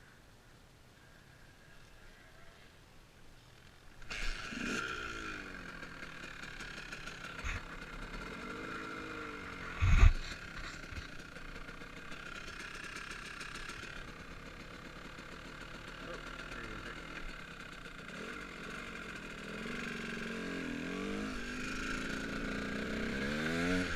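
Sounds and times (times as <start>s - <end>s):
dirt bike engine running: 3.5s - 23.9s.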